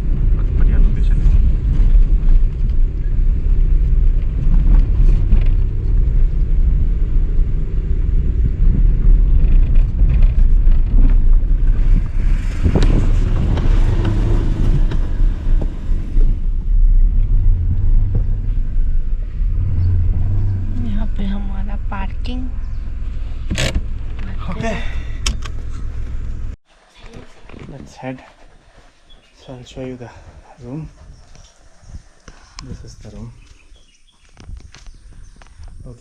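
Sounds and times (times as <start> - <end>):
car driving from inside cabin: 0.0 - 26.6.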